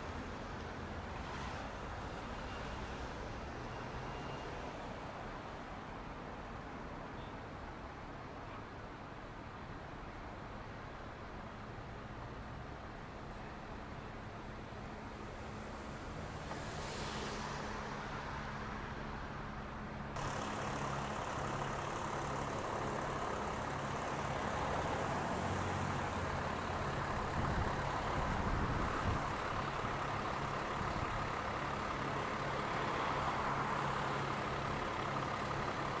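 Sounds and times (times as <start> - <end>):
engine idling: 20.2 - 36.0.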